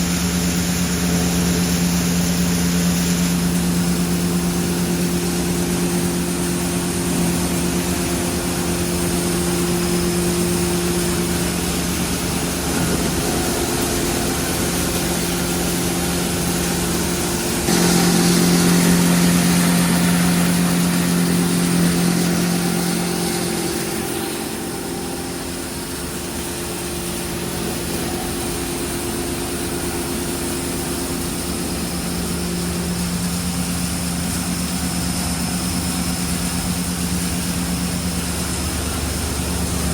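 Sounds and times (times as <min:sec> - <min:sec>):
machine hum: 0:00.0 - 0:39.9.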